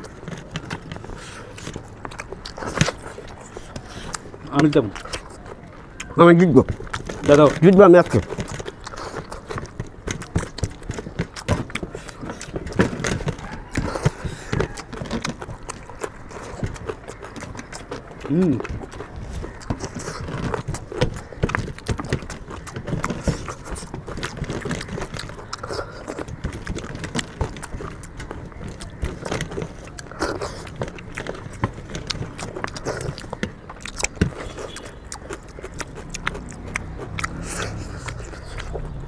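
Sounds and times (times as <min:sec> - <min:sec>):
food and plates clicking: 0:00.0 - 0:39.0
people chewing: 0:00.0 - 0:39.0.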